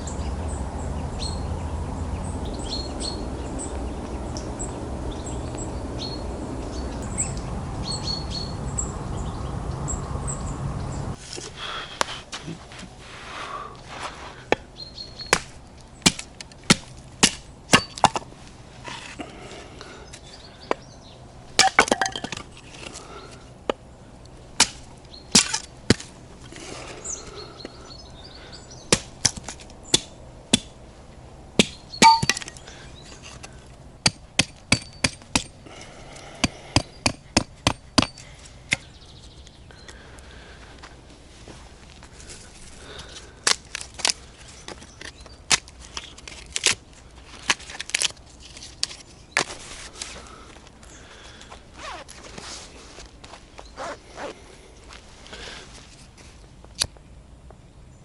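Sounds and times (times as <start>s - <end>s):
sharp cracks and snaps: 24.6s - 26.6s, 43.0s - 50.2s.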